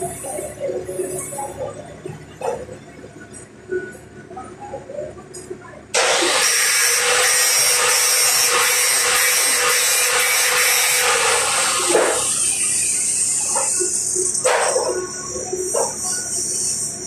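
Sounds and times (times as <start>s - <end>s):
harsh hissing of metal grinding: 6.0s - 17.0s.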